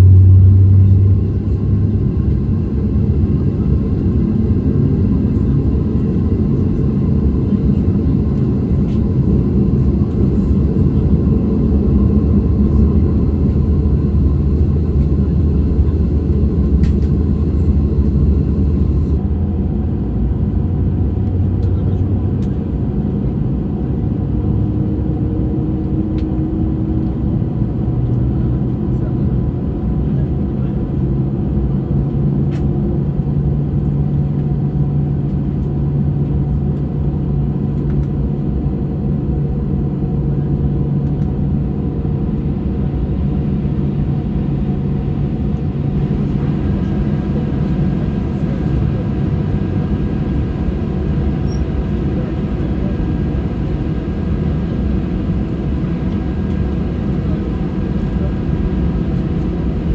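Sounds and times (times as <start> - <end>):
low humming tones: 0.0 - 19.2, 41.9 - 59.9
airplane cabin rumble: 0.0 - 24.3, 32.0 - 59.9.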